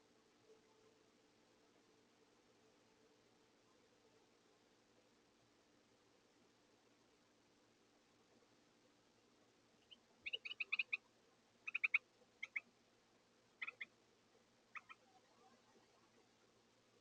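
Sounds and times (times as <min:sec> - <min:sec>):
wren harsh call notes: 0:10.2 - 0:11.0, 0:11.7 - 0:12.6, 0:13.6 - 0:13.9.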